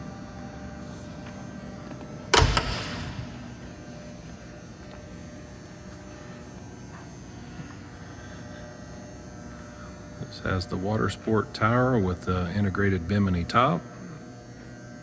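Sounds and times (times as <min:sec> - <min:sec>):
steady low hum: 0:00.0 - 0:15.0
sharp knocks: 0:02.4 - 0:04.1.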